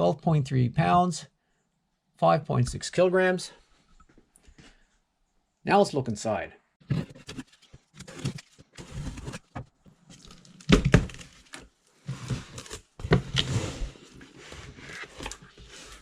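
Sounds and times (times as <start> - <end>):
cardboard rustling and scraping: 6.8 - 16.0.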